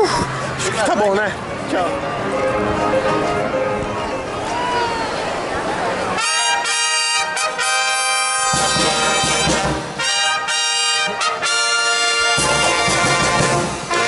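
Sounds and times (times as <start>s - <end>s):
brass band playing: 1.7s - 4.7s, 6.1s - 14.0s.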